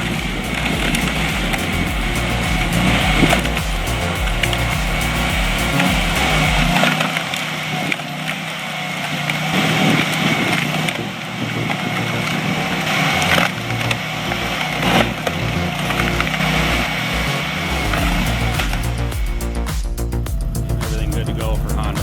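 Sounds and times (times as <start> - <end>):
gas engine running: 0.0 - 22.0.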